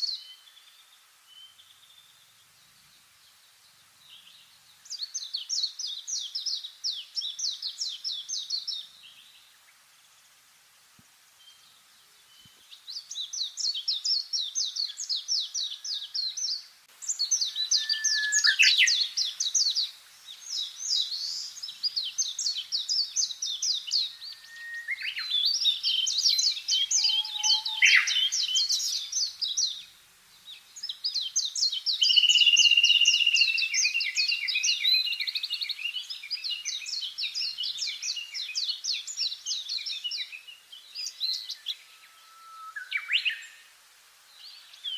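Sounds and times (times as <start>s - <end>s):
songbirds trilling: 12.3s - 43.7s
bird whistles: 17.2s - 19.2s, 23.9s - 29.1s.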